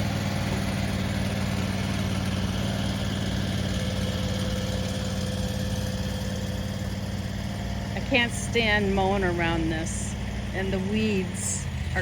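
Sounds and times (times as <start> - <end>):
skid steer engine idling: 0.0 - 12.0.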